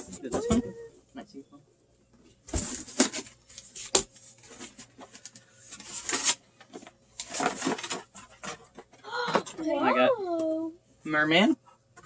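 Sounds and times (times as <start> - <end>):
cardboard rustling and tearing: 2.6 - 6.4.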